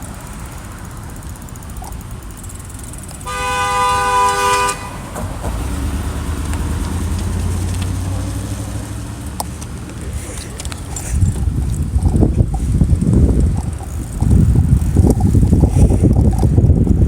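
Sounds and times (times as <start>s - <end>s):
car horn held: 3.2s - 5.2s
car passing by: 3.2s - 11.0s.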